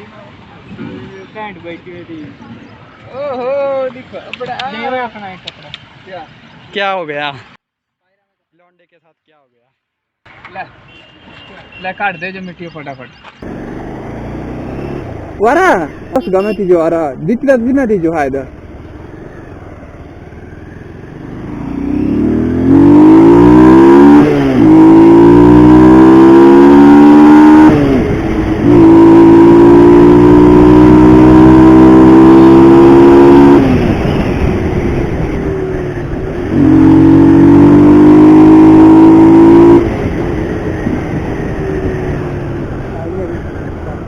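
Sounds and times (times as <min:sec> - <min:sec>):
motorcycle engine accelerating: 0:13.4 - 0:44.0.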